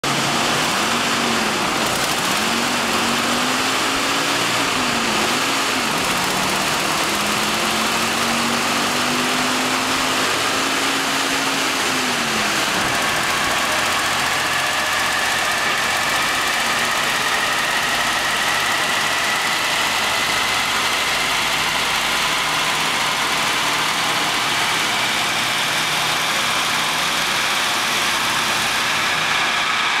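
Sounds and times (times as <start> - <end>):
car engine revving: 0.0 - 30.0
rising whine: 0.1 - 30.0.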